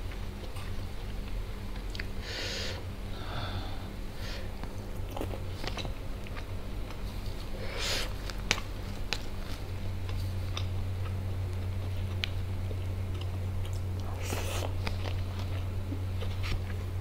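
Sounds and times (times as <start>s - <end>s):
low hum: 0.0s - 17.0s
breath through nose: 2.2s - 4.5s
close chewing: 4.6s - 17.0s.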